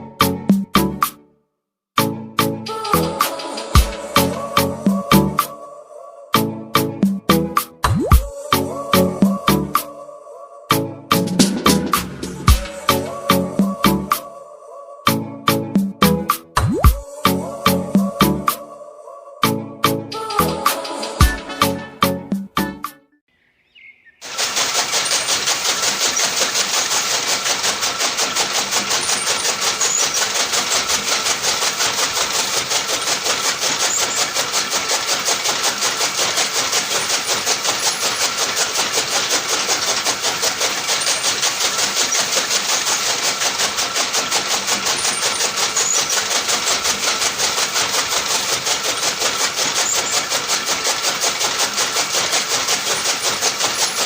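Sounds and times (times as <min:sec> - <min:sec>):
small tractor motor buzzing: 0:24.2 - 0:54.0.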